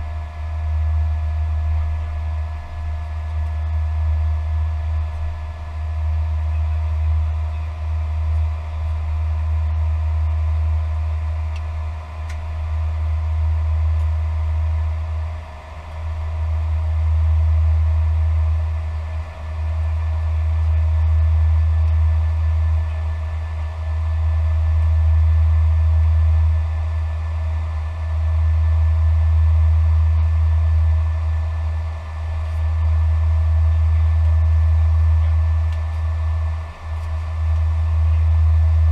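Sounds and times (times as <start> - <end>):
cockpit low rumble: 0.0 - 38.9
constant whining tones: 0.0 - 38.9.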